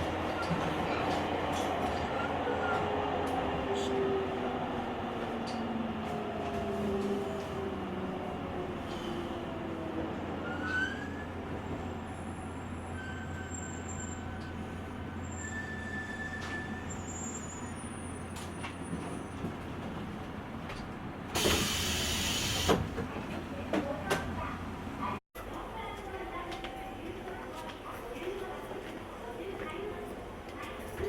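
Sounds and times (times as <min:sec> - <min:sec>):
train interior hum and rolling: 0:00.0 - 0:31.0
faint squeals and clicks: 0:15.2 - 0:19.4
loud hiss of air: 0:21.4 - 0:22.8.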